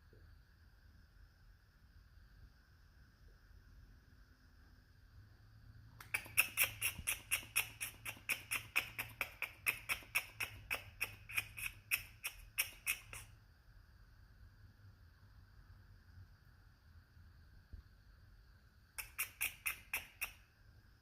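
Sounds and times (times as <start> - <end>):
squirrel alarm chirps: 6.0 - 13.3, 19.0 - 20.5.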